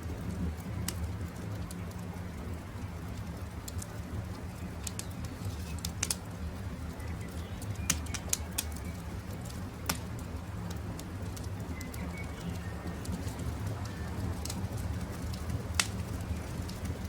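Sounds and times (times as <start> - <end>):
campfire crackling and popping: 0.0 - 17.0
faint bird chirps: 11.7 - 12.9.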